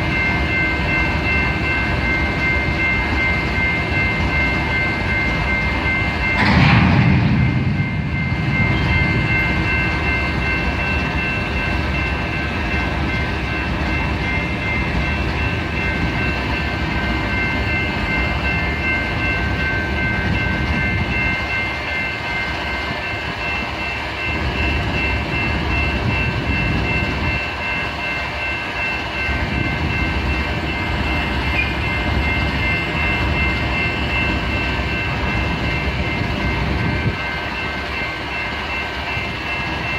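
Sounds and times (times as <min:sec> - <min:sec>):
freight train rolling: 0:00.0 - 0:39.9
high steady tones: 0:00.0 - 0:39.9
loud burst: 0:06.4 - 0:08.9.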